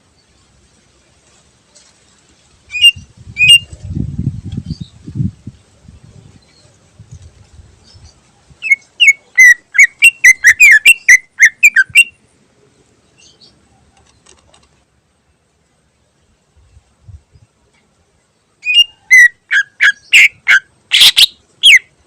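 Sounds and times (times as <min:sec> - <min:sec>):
bird whistled song: 0:02.7 - 0:03.8, 0:07.9 - 0:12.2, 0:18.6 - 0:22.0
faint bird chirps: 0:16.6 - 0:22.0.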